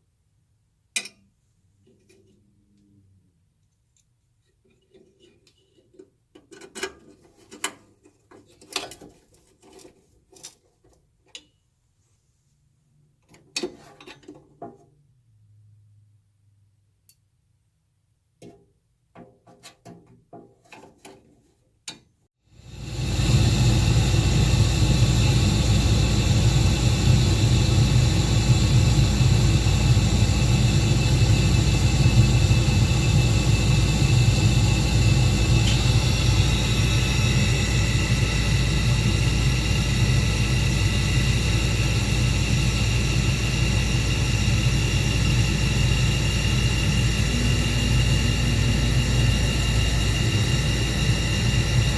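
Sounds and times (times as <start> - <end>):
furnace motor rumbling and whining: 22.5 - 51.9.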